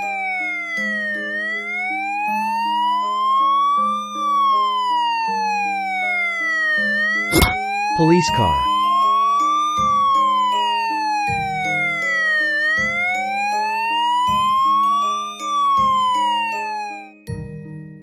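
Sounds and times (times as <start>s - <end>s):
police siren wailing: 0.0s - 17.2s.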